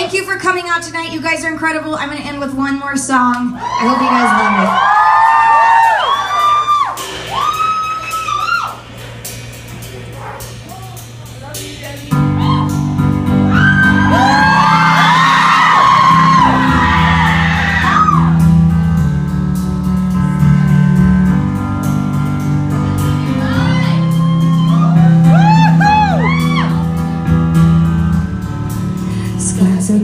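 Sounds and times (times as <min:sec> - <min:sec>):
audience screaming and whooping: 0:03.6 - 0:09.0, 0:12.2 - 0:18.6, 0:23.0 - 0:27.0
live band playing a ballad: 0:06.1 - 0:30.0.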